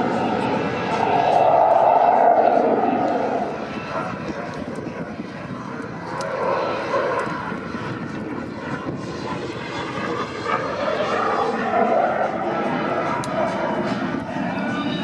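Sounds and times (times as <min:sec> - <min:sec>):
jet engine roar in flight: 0:00.0 - 0:15.0.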